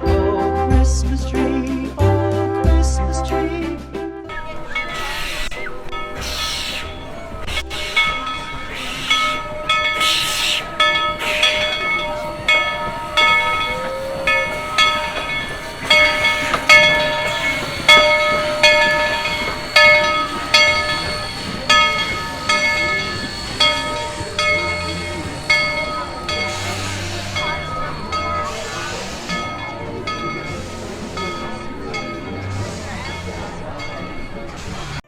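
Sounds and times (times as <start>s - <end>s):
train bell ringing: 4.3s - 35.0s.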